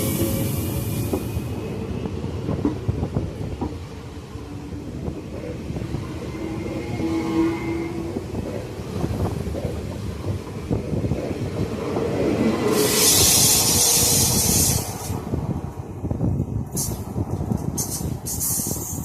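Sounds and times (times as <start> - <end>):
train rumble: 0.0 - 19.0
loud high hiss: 12.8 - 15.2.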